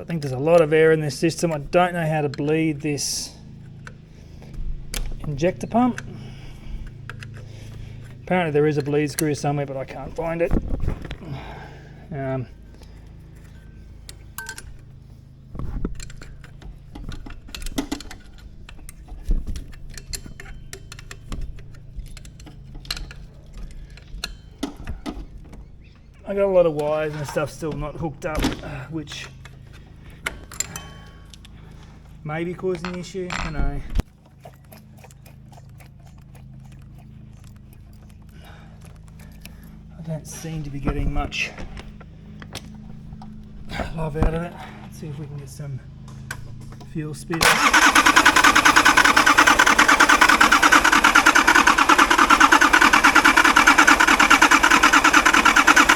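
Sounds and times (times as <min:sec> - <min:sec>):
steady low hum: 0:00.0 - 0:34.2
metal tools clinking on metal: 0:14.3 - 0:14.7, 0:30.5 - 0:31.4, 0:32.6 - 0:33.9
starter motor cranking: 0:47.4 - 0:55.9.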